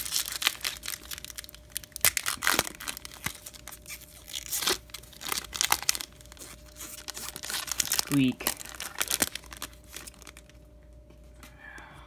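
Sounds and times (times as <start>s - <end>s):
foil wrapper crinkling and tearing: 0.0s - 10.6s
cards being handled: 2.0s - 11.5s.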